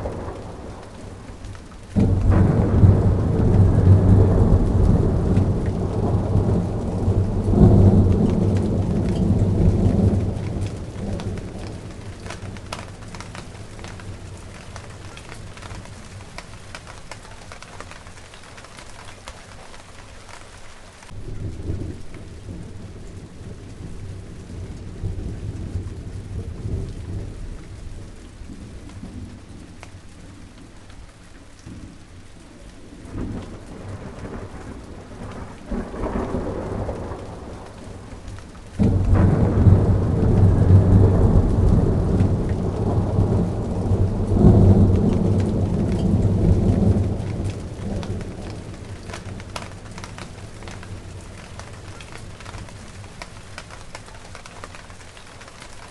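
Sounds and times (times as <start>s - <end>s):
thunder rolling: 0.0s - 18.7s, 33.0s - 54.8s
steady rain on plants: 0.0s - 55.9s.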